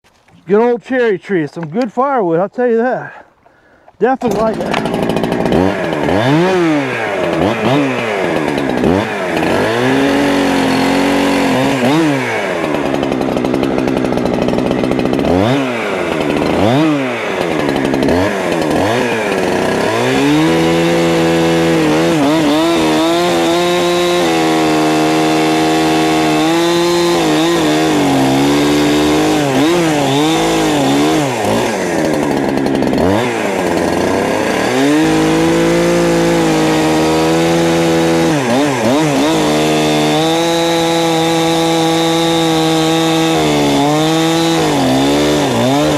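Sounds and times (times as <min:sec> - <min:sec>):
chainsaw revving: 0:00.2 - 0:45.9.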